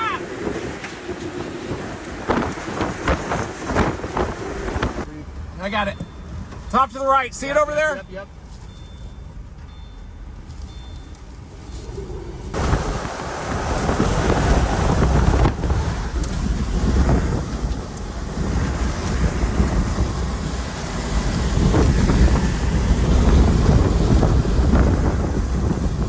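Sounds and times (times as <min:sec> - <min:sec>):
storm wind buffeting microphone: 0:00.0 - 0:08.5, 0:11.2 - 0:26.0
deep rumble: 0:09.3 - 0:26.0.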